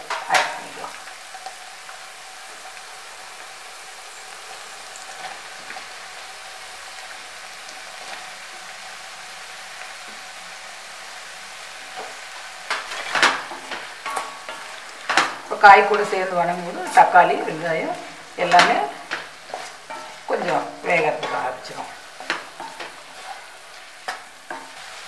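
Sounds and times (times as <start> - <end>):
vegetables sizzling in hot oil: 0.0 - 25.0
spatula scraping a pan: 11.9 - 25.0.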